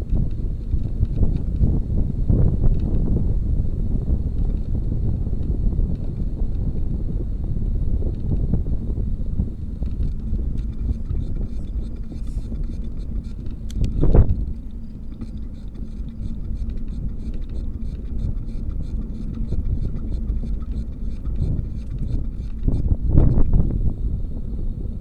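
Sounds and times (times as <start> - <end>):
wind buffeting microphone: 0.0 - 25.0
fast steady ticking: 8.1 - 23.4.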